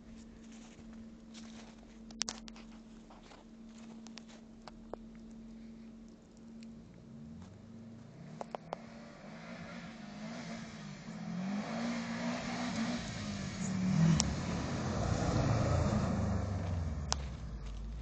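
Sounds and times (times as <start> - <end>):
car engine revving: 7.1 - 18.0.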